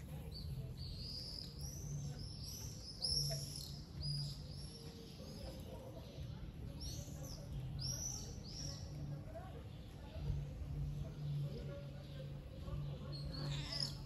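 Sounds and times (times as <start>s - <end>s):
small songbird chirping: 0.0s - 9.1s.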